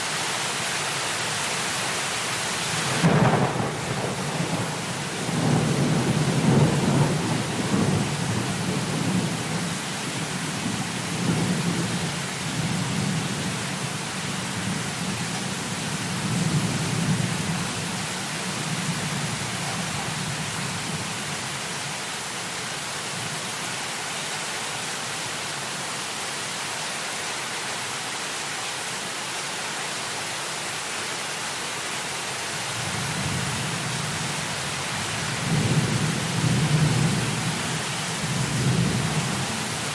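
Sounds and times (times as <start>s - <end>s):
heavy rain falling: 0.0s - 39.9s
rolling thunder: 3.0s - 9.7s.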